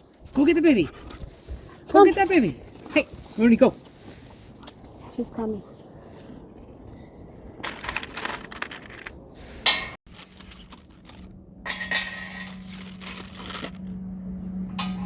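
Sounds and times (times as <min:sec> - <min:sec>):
metal parts clinking: 0:10.1 - 0:13.9
sharp metal clank: 0:11.6 - 0:12.7, 0:14.7 - 0:15.0.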